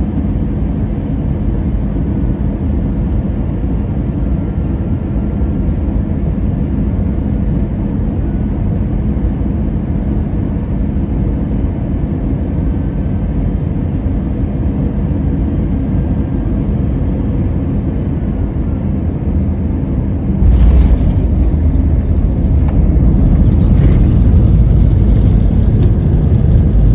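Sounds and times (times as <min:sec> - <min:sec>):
airliner cabin rumble: 0:15.5 - 0:26.9.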